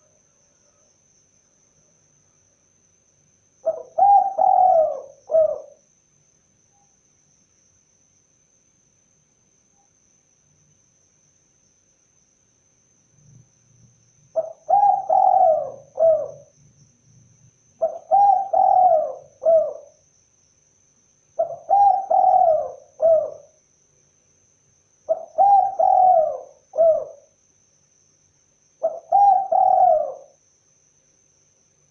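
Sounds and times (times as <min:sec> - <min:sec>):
dove cooing: 0:03.6 - 0:05.8, 0:14.4 - 0:16.5, 0:17.8 - 0:20.0, 0:21.4 - 0:23.6, 0:25.1 - 0:27.3, 0:28.8 - 0:30.4.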